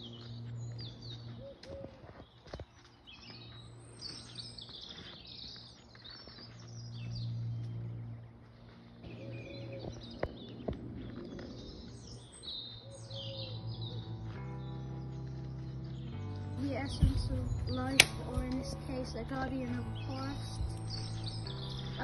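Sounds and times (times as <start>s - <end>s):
small birds chirping: 0.0s - 22.0s
sharp clicks: 17.8s - 18.7s.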